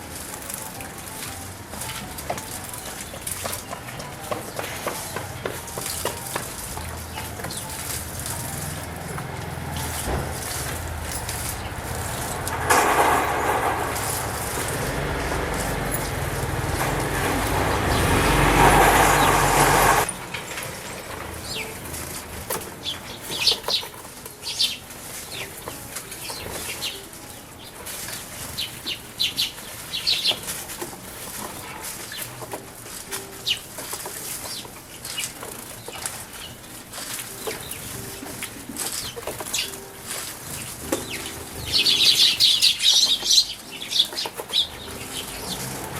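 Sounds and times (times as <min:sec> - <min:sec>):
birds splashing water: 0:00.0 - 0:20.1, 0:20.8 - 0:45.9
wings fluttering: 0:00.0 - 0:20.1.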